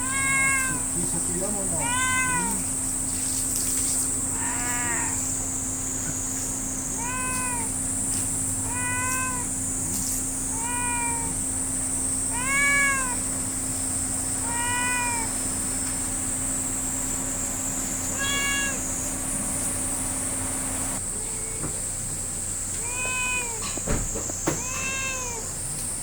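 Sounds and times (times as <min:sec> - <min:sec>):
cat meowing: 0:00.0 - 0:02.7, 0:04.3 - 0:05.5, 0:06.9 - 0:07.9, 0:08.6 - 0:13.4, 0:14.3 - 0:15.6, 0:17.9 - 0:19.0, 0:21.0 - 0:21.9, 0:22.7 - 0:23.8, 0:24.5 - 0:25.6.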